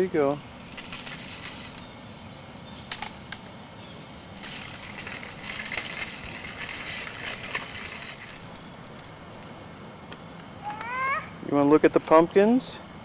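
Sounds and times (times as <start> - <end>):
bicycle rattling: 0.0 - 1.9, 4.3 - 9.6.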